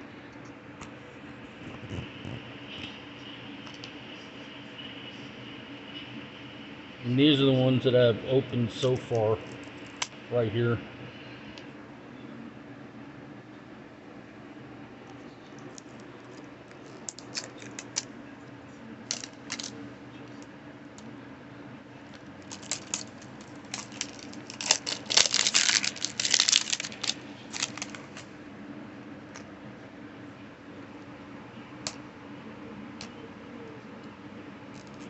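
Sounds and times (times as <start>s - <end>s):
plastic packaging crinkling: 15.7s - 18.0s, 19.1s - 19.8s, 22.1s - 28.3s.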